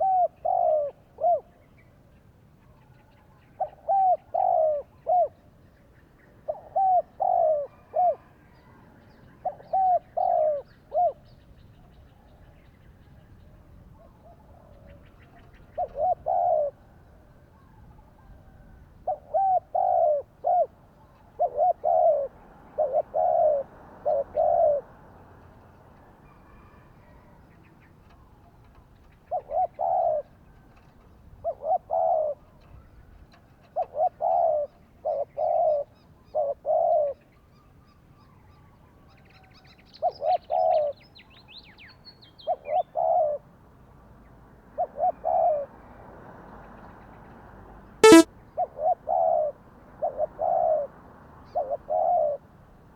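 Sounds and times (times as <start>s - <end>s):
dove cooing: 0.0s - 1.5s, 3.6s - 5.4s, 6.5s - 8.3s, 19.1s - 20.7s, 21.4s - 24.8s.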